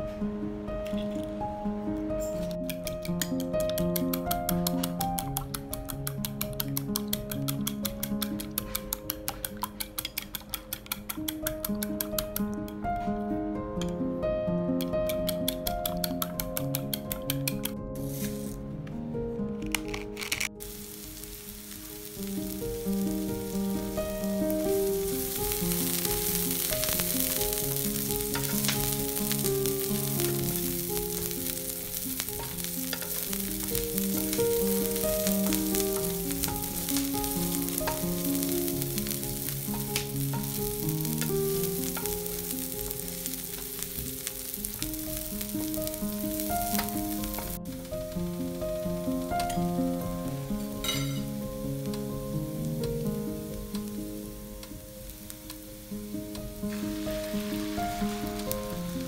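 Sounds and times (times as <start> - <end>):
soft piano music: 0.0 - 59.0
onion sizzling in hot oil: 2.2 - 12.8, 14.7 - 18.6, 19.9 - 59.0
wooden spatula scraping: 18.0 - 18.6.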